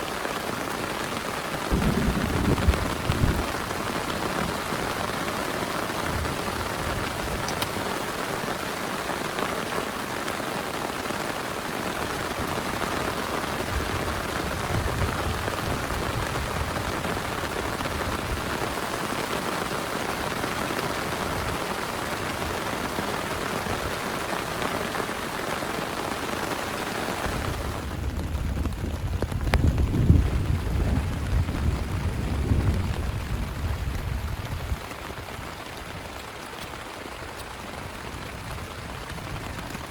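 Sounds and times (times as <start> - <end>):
heavy rain on a plastic tarp: 0.0 - 39.9.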